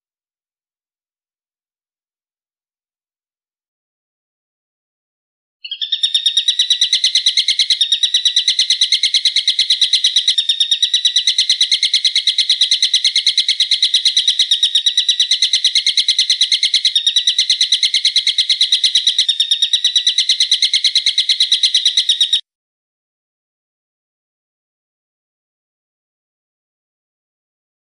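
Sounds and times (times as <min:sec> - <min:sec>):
sharp piercing bird call: 0:05.6 - 0:22.4.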